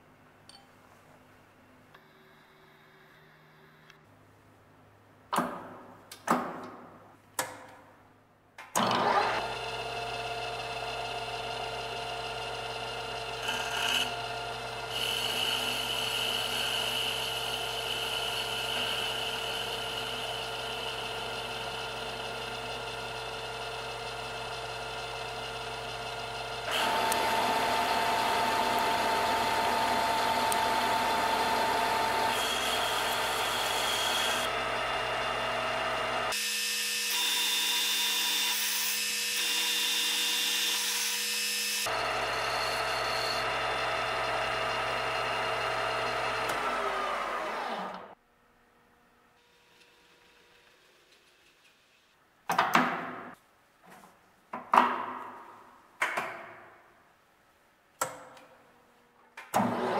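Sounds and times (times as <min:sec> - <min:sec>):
metal lathe running: 0:08.8 - 0:36.4, 0:41.9 - 0:48.1
high whine of metal cutting: 0:26.7 - 0:48.2.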